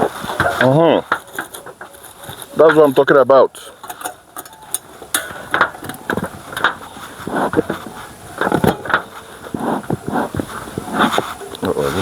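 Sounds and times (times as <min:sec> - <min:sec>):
metal clatter and knocks: 0:00.0 - 0:09.3.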